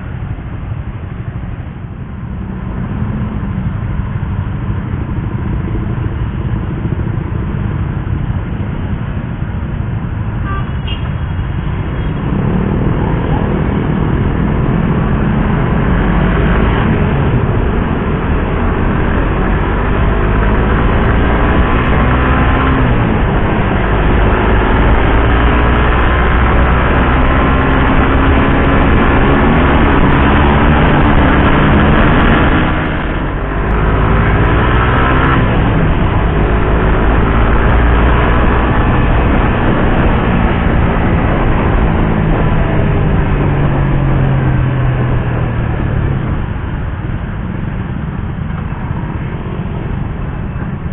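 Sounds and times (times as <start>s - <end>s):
motorcycle engine revving: 10.8s - 50.9s.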